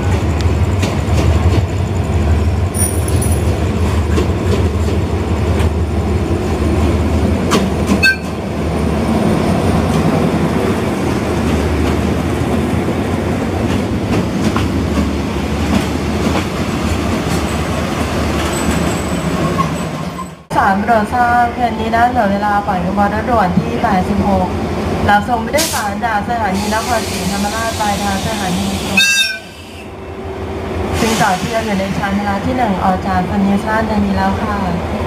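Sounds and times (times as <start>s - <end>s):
train wheels over rail joints: 0.0s - 20.4s.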